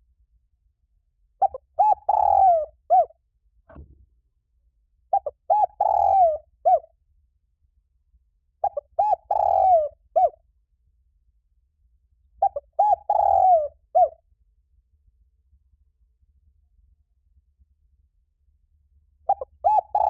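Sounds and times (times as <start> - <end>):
dove cooing: 1.4 - 3.1, 5.1 - 6.9, 8.6 - 10.4, 12.4 - 14.2, 19.3 - 20.0.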